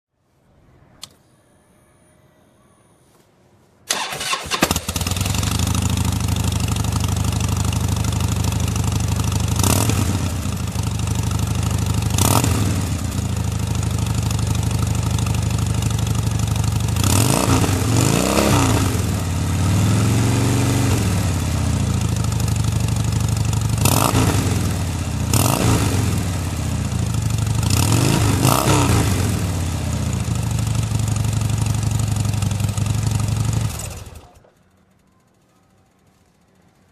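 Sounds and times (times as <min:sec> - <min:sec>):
motorcycle starter cranking: 0:03.9 - 0:09.5
motorcycle engine idling and revving: 0:03.9 - 0:34.6.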